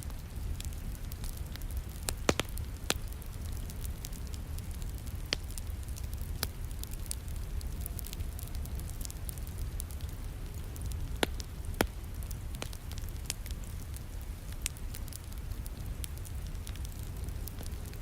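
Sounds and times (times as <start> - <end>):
fire snapping: 0.0 - 18.0
wood fire crackling: 0.0 - 18.0.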